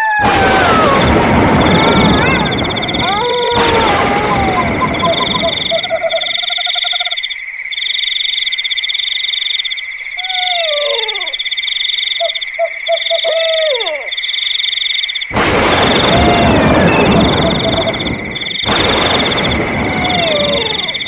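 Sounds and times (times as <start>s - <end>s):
insects trilling: 1.0s - 3.8s, 4.4s - 21.0s
frog-like croaking: 1.0s - 21.0s
falling whistled calls: 1.5s - 9.6s, 10.2s - 21.0s.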